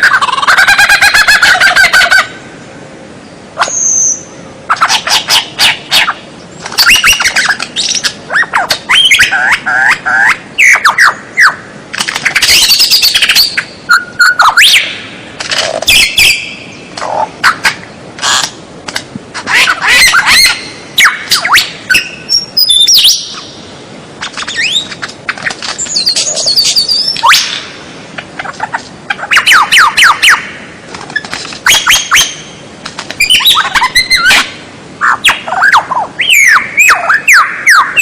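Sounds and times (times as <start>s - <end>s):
bird song with clicks and whistles: 3.6s - 14.9s, 15.9s - 18.5s, 20.0s - 23.5s, 24.2s - 27.7s, 31.1s - 32.5s, 33.2s - 34.5s, 35.1s - 38.0s.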